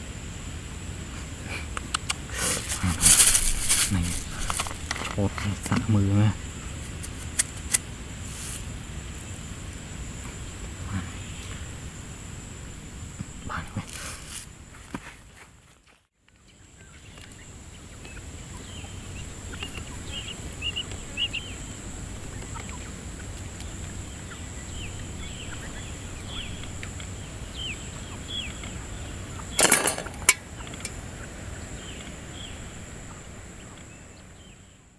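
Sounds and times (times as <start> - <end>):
loud clatter: 2.4 - 5.2, 29.6 - 31.0.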